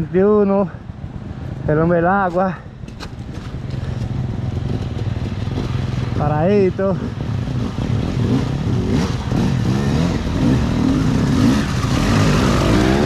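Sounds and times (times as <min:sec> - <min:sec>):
dirt bike engine revving: 0:03.8 - 0:13.0.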